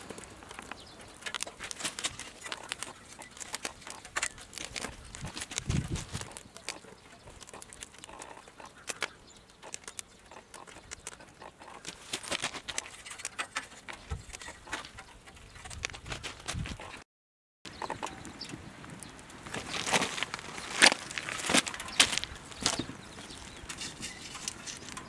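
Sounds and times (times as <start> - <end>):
firewood crackling and popping: 0.0 - 16.9, 17.7 - 25.0.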